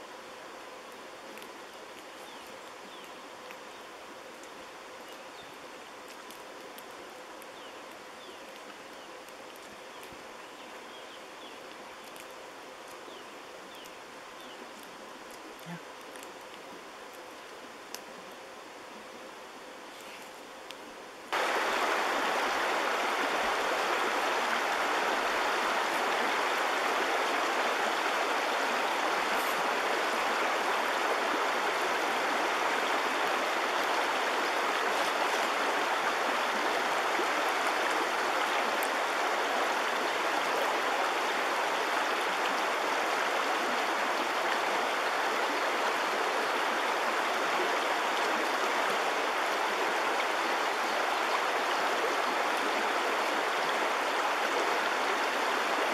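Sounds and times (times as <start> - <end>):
stream running over stones: 21.3 - 55.9.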